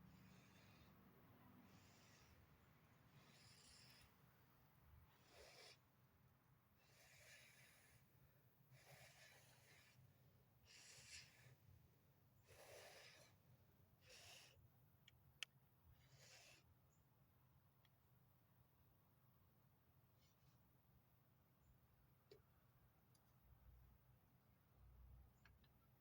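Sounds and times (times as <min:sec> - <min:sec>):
slow soft breathing: 0:00.0 - 0:04.3.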